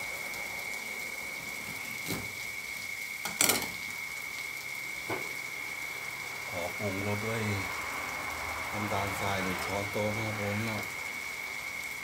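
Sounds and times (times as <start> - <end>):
faint high whine: 0.0 - 12.0
food sizzling gently in a wok: 0.0 - 12.0.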